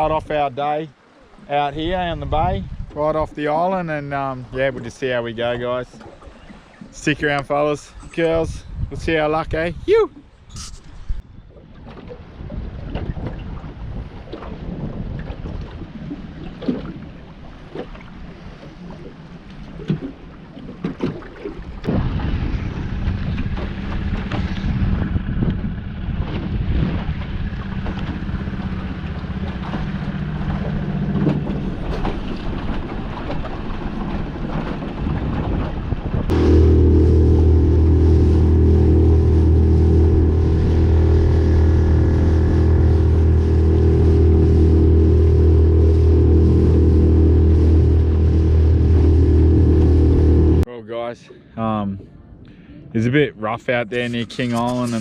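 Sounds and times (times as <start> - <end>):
wind: 0.0 - 55.0
water knocks and slaps on boat: 11.5 - 50.6
boat motor running: 15.3 - 50.7
loud steady sound: 36.3 - 50.7.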